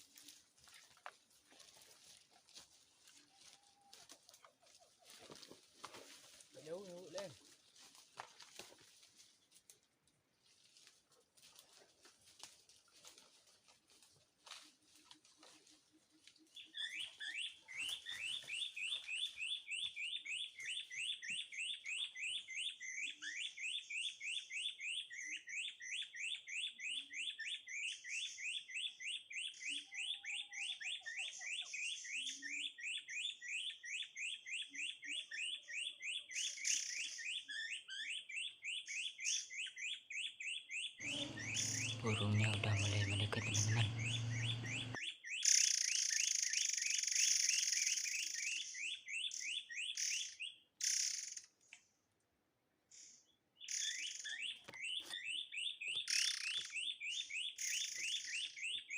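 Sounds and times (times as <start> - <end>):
recorded bird call through speaker: 41.0 - 45.0.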